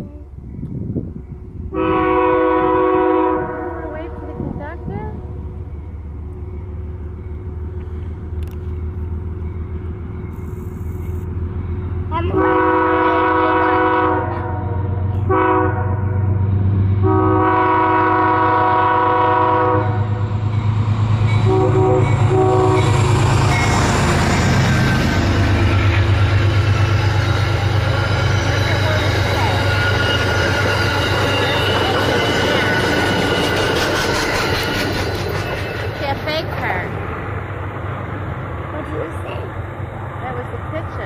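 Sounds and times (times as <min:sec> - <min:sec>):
train rumble: 0:00.0 - 0:41.0
train horn blasts: 0:01.7 - 0:04.8, 0:12.2 - 0:16.4, 0:17.0 - 0:20.3, 0:21.4 - 0:23.0.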